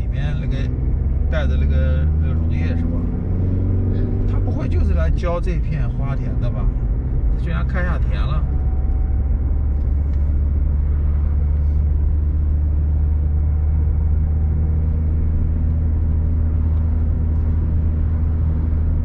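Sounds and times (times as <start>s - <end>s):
car engine and tyres drone: 0.0s - 19.0s.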